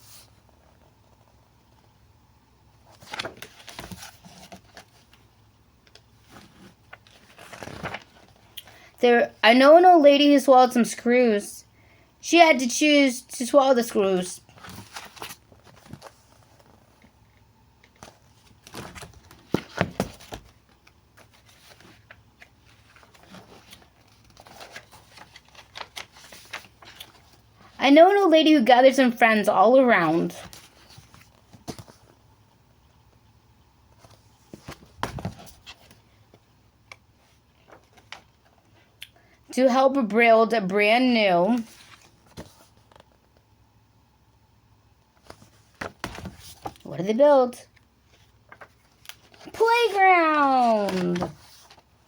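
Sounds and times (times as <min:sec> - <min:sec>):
paper book rustling: 0:02.8 - 0:05.3, 0:05.9 - 0:08.6, 0:14.4 - 0:27.8, 0:30.0 - 0:32.2, 0:33.9 - 0:38.8, 0:41.4 - 0:43.4, 0:45.2 - 0:46.9, 0:47.7 - 0:52.0
page turning: 0:02.9 - 0:05.2, 0:05.9 - 0:08.5, 0:14.5 - 0:17.1, 0:17.8 - 0:27.4, 0:34.0 - 0:38.5, 0:41.5 - 0:43.2, 0:48.1 - 0:51.9.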